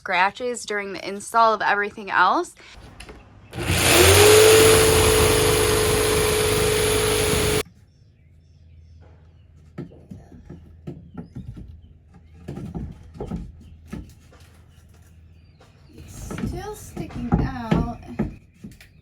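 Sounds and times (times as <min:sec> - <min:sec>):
power tool motor running: 0:03.6 - 0:07.6.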